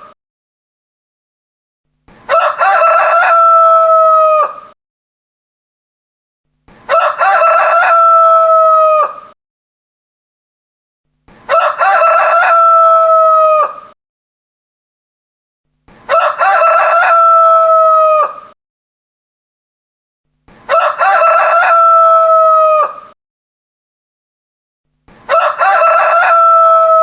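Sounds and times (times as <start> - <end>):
rooster crowing: 2.3 - 4.8, 6.9 - 9.4, 11.5 - 14.0, 16.1 - 18.6, 20.7 - 23.2, 25.3 - 27.0.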